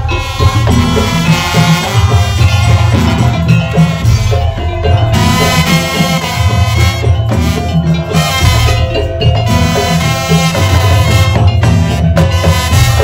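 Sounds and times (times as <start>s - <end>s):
percussion ensemble music: 0.0s - 13.0s.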